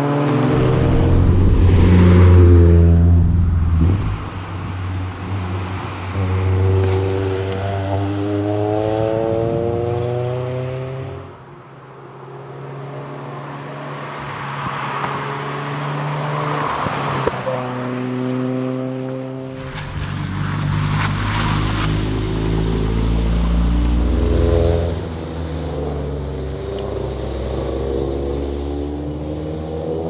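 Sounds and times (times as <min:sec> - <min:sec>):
car engine accelerating: 0:00.0 - 0:11.3, 0:19.0 - 0:27.0
tyre and wind noise: 0:00.3 - 0:06.0.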